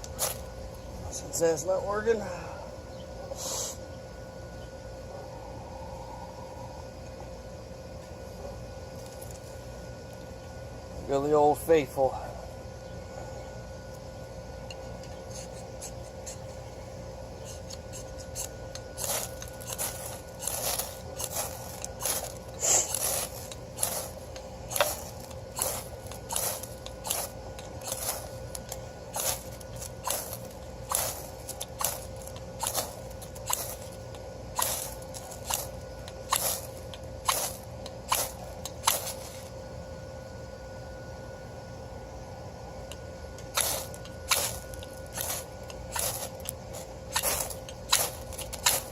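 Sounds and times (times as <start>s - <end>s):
sharp scraping strokes by hand: 14.7s - 16.6s, 17.4s - 39.5s, 43.4s - 48.9s.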